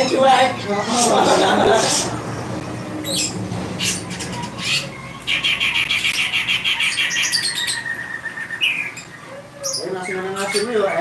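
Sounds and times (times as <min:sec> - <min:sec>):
songbird singing: 0:02.8 - 0:11.0.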